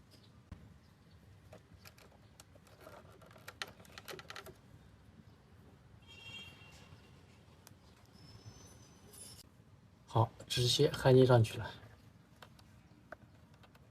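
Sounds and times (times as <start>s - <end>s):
small clicks and light taps: 12.3s - 13.9s.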